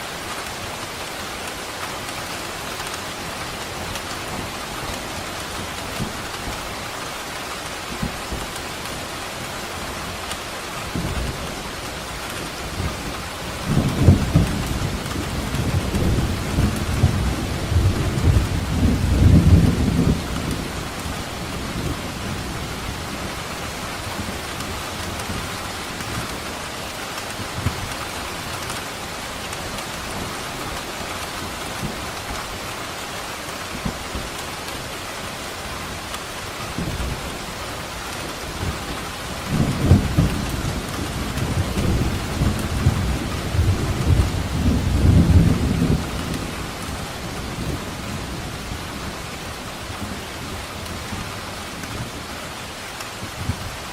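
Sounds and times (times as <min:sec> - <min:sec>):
heavy rain: 0:00.0 - 0:53.9
rolling thunder rumble: 0:12.5 - 0:26.3, 0:38.2 - 0:52.2.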